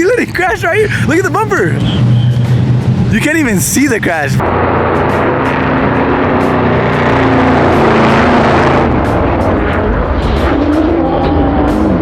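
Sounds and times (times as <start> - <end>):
drift car engines at high revs: 6.0 - 12.0.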